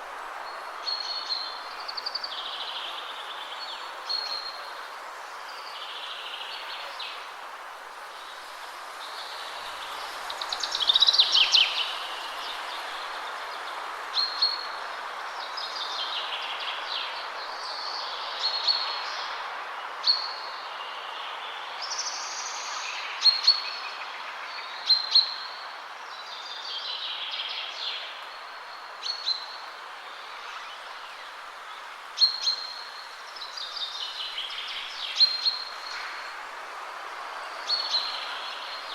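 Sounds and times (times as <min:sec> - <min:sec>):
wind rushing through trees: 0:00.0 - 0:38.9
songbirds singing: 0:08.2 - 0:38.9.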